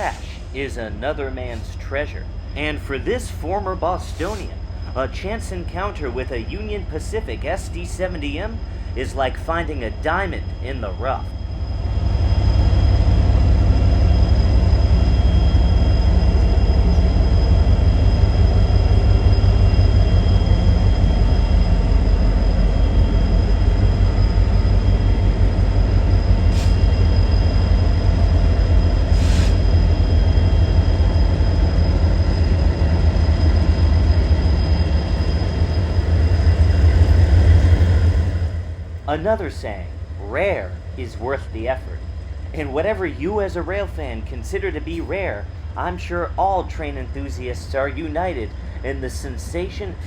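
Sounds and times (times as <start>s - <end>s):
hissing bursts: 0.0s - 0.6s
freight train rumbling past: 0.0s - 50.0s.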